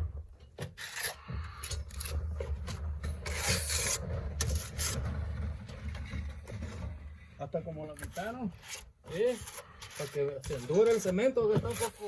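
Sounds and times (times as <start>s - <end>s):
trowel scraping: 0.5s - 7.2s, 7.9s - 12.0s.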